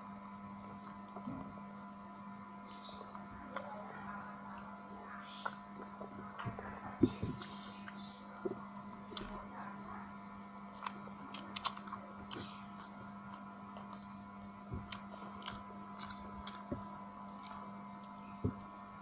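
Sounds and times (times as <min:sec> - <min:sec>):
steady low hum: 0:00.0 - 0:19.0
person chewing and biting: 0:10.7 - 0:18.8.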